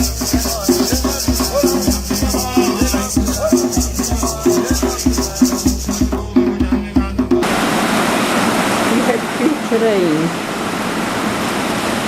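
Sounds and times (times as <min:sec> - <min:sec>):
shakers rattling: 0:00.0 - 0:06.1
voices chanting: 0:00.0 - 0:07.2
hand drums beating: 0:00.0 - 0:07.5.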